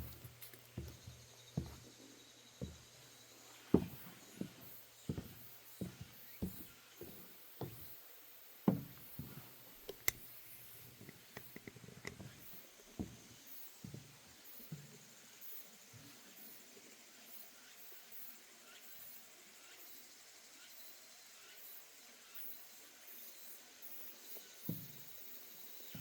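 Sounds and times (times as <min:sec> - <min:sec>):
footsteps on wooden boardwalk: 0:00.0 - 0:15.1, 0:24.7 - 0:25.1.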